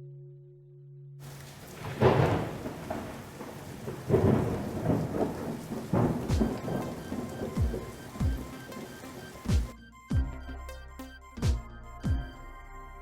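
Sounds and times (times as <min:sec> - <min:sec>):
rain falling: 0:01.2 - 0:09.7
rolling thunder: 0:01.2 - 0:09.7.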